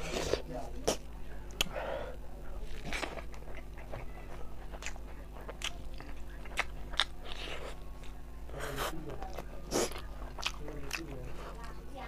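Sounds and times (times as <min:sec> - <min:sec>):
low steady hum: 0:00.0 - 0:12.0
chewing with wet mouth smacks: 0:02.8 - 0:12.0.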